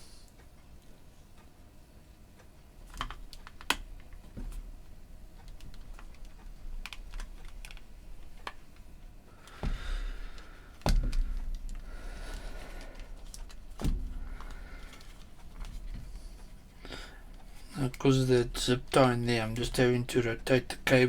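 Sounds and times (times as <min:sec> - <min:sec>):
small parts clicking and tapping: 0:02.4 - 0:04.7, 0:05.4 - 0:16.5.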